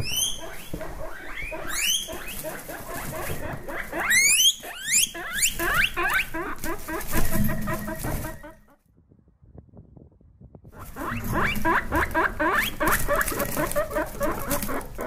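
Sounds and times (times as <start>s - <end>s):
guinea pigs wheeking: 0.0s - 8.8s, 10.8s - 15.0s
short chirping squeaks: 0.0s - 8.8s.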